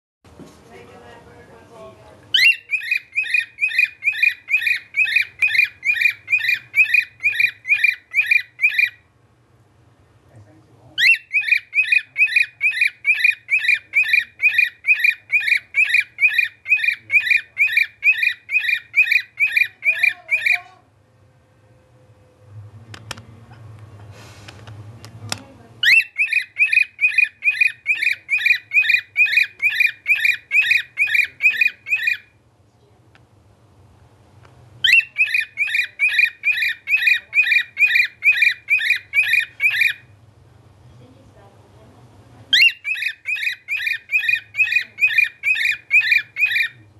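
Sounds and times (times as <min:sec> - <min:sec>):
pet bird whistling: 0:02.4 - 0:09.1, 0:11.0 - 0:20.7, 0:25.8 - 0:32.4, 0:34.8 - 0:40.1, 0:42.5 - 0:46.8.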